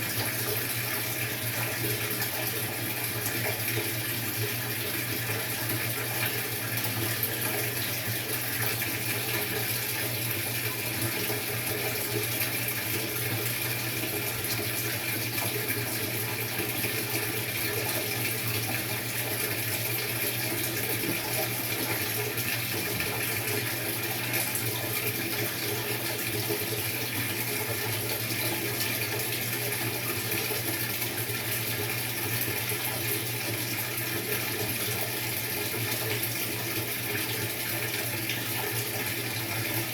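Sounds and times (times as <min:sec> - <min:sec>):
water rushing in washing machine: 0:00.0 - 0:39.9.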